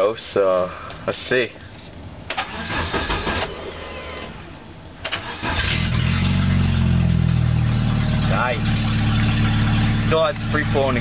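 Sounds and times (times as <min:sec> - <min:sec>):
starter cranking engine: 0:02.3 - 0:04.2, 0:05.0 - 0:06.1
car engine running: 0:05.6 - 0:11.0.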